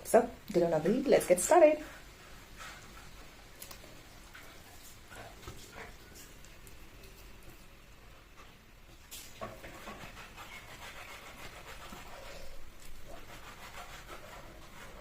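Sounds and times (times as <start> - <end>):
food rustling and clicking: 1.9 - 12.1.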